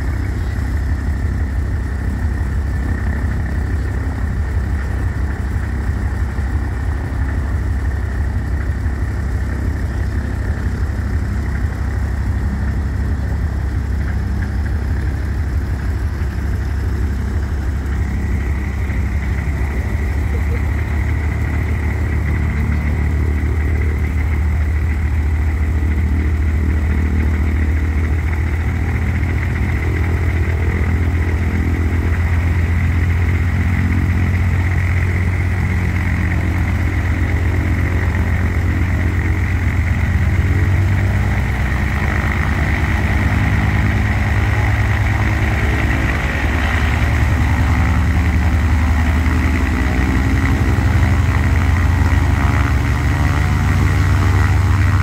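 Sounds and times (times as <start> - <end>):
radial engine and propeller running: 0.0 - 55.0.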